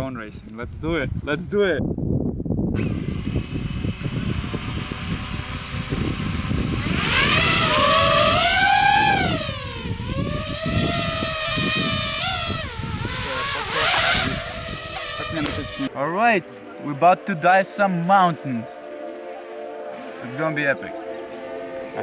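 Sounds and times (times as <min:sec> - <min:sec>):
drone motors whining: 0:02.8 - 0:15.9.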